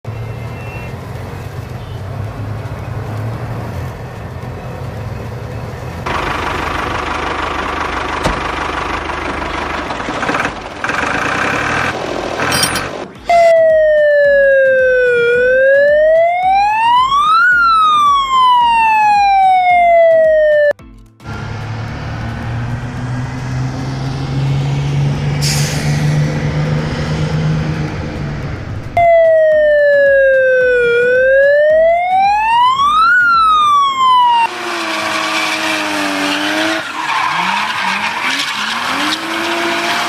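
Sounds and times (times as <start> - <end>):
toy police car siren wailing: 13.3 - 20.7, 29.0 - 34.5.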